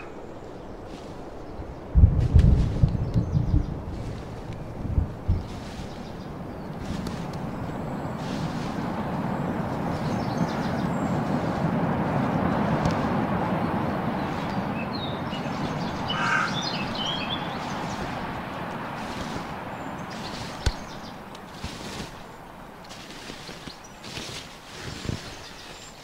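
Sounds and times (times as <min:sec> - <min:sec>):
bird calling: 0:00.0 - 0:01.9, 0:03.0 - 0:26.0
outdoor rushing noise: 0:00.0 - 0:25.2.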